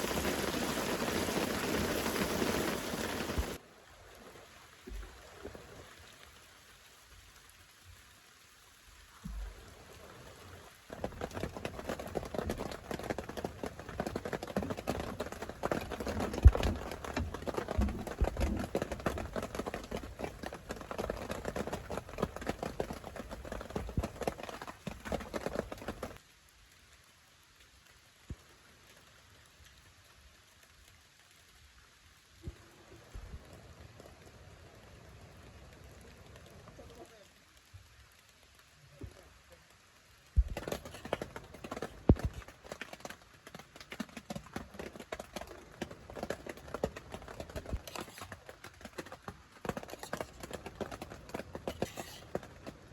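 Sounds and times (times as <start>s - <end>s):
rain pattering: 0.0s - 52.9s.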